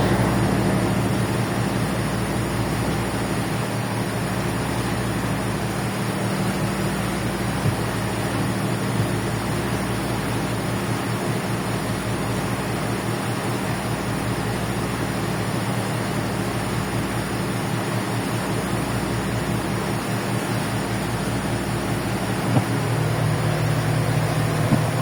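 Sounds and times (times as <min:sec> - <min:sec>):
ferry engines droning: 0:00.0 - 0:25.0
wind and water rushing: 0:20.3 - 0:25.0.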